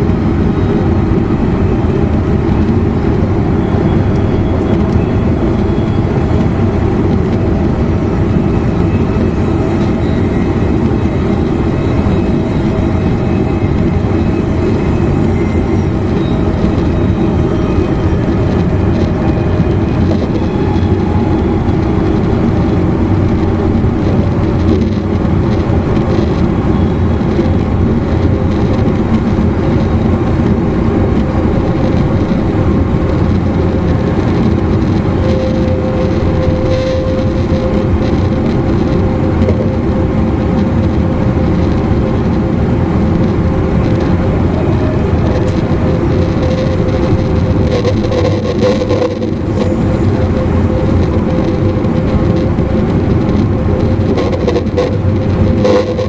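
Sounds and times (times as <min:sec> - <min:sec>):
steady electric hum: 0:00.0 - 0:56.0
train wheels rumbling on rail: 0:00.0 - 0:56.0.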